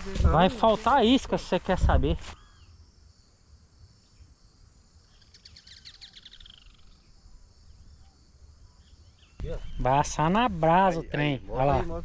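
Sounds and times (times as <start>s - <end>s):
faint bird chirps: 2.3s - 10.3s.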